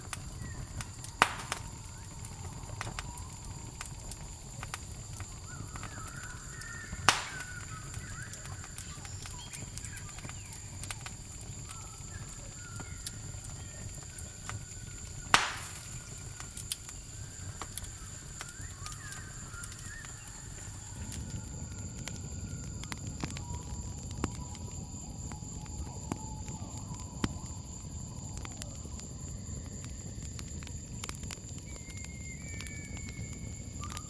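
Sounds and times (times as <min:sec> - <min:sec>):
faint wavering animal calls: 0:00.0 - 0:24.0
campfire crackling: 0:00.0 - 0:34.0
cricket chirring: 0:00.0 - 0:34.0
loud fire pops: 0:00.0 - 0:34.0.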